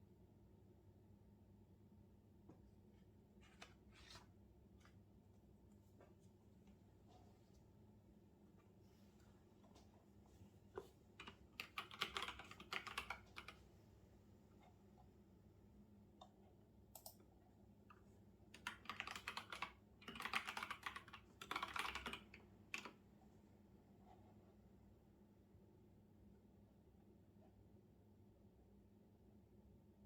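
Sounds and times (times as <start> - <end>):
keyboard typing: 10.8 - 13.6, 17.0 - 17.2, 18.6 - 23.0.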